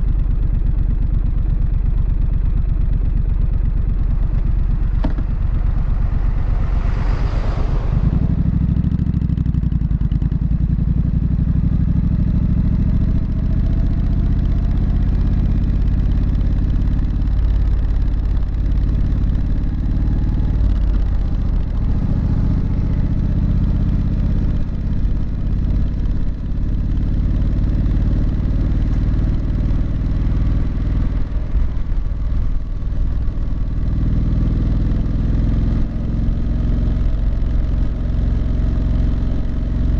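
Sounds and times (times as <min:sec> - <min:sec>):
motorcycle engine running: 0:00.0 - 0:39.9
short rush of noise: 0:04.8 - 0:09.2.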